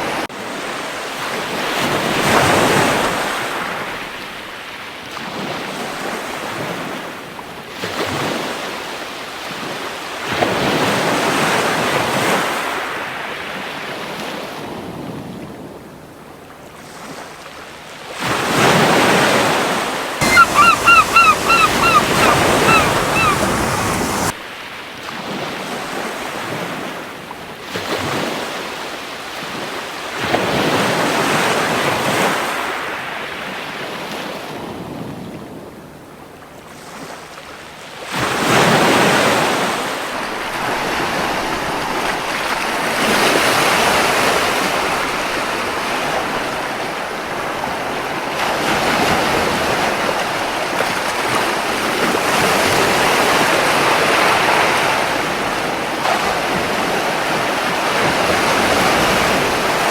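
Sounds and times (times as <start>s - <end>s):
gull calling: 20.2s - 24.3s
surf washing onto beach: 20.2s - 24.3s.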